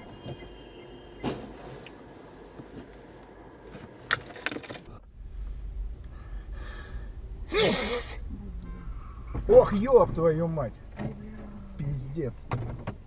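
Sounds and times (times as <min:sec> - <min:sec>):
person gasping or crying out: 0:07.5 - 0:08.2.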